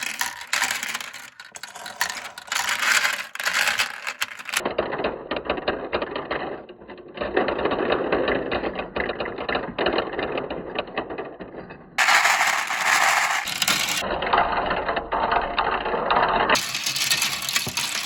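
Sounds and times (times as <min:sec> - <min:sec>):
glass marbles rolling and clattering: 0:00.0 - 0:04.6, 0:12.0 - 0:14.0, 0:16.6 - 0:18.0.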